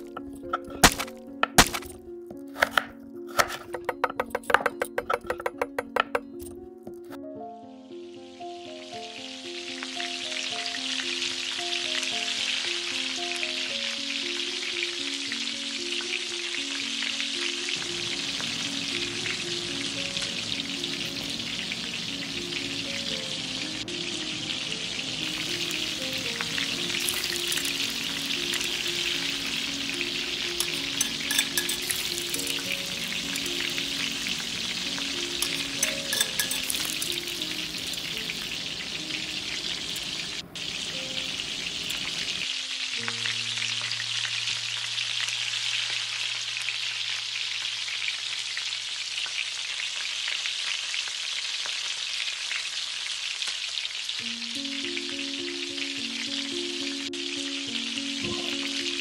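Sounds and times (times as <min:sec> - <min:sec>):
food sizzling in hot oil: 0:00.0 - 0:06.3, 0:08.3 - 0:59.0
crackling stirring noise: 0:00.0 - 0:07.2, 0:16.8 - 0:55.2
soft background music: 0:00.0 - 0:47.6, 0:54.2 - 0:59.0.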